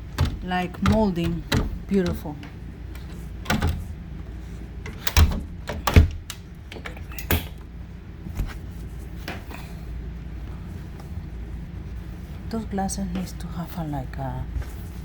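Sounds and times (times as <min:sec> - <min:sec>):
knocks and clicks of door latches: 0:00.0 - 0:03.9, 0:04.8 - 0:07.6
steady low hum: 0:00.0 - 0:15.0.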